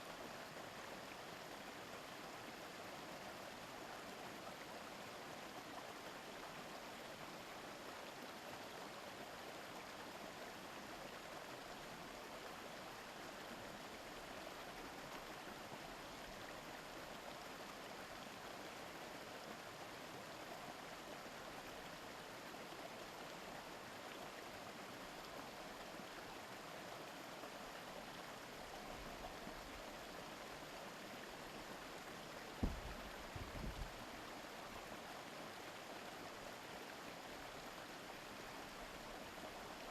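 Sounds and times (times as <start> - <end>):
river running over stones: 0.0 - 39.9
low thump: 32.6 - 33.9.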